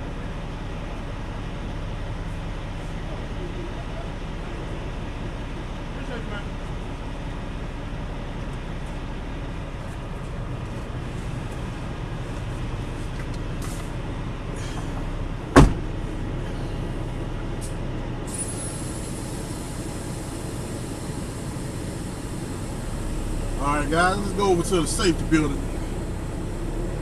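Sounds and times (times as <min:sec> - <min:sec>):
diesel truck engine running: 0:00.0 - 0:27.0
sharp loud knock: 0:15.6 - 0:15.9.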